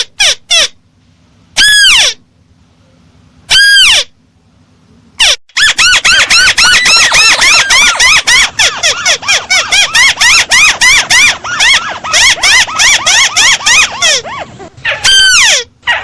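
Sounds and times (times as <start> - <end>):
crake whistled call: 5.2 - 14.2.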